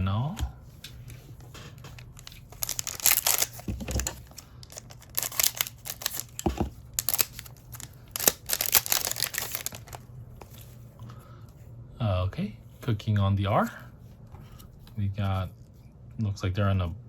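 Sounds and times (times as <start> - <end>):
plastic wrapper crinkling: 1.8 - 10.6.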